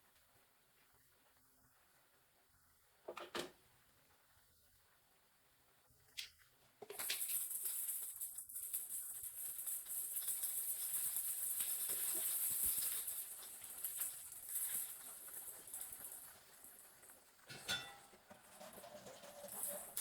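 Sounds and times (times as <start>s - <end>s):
oil sizzling in a pan: 9.2s - 20.0s.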